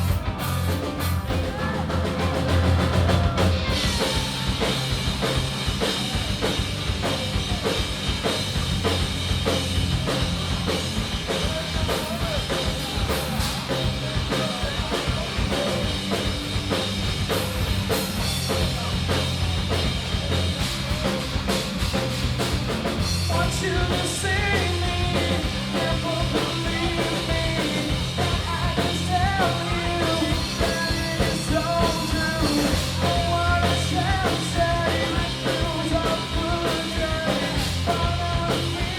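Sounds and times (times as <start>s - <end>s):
wavering melodic lead line: 0.0s - 21.5s
rock band playing live: 0.0s - 38.9s.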